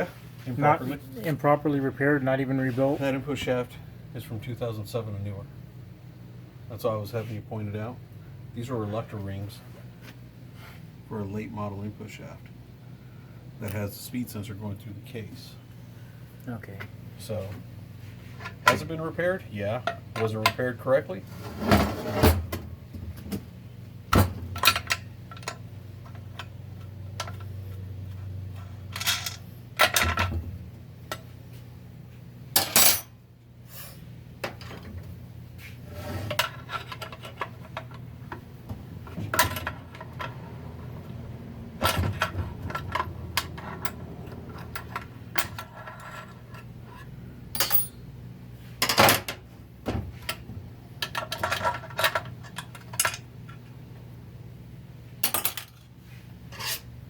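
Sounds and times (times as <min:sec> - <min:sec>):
steady low hum: 0:00.0 - 0:57.0
metal parts clinking on workbench: 0:47.6 - 0:48.0, 0:55.2 - 0:55.8.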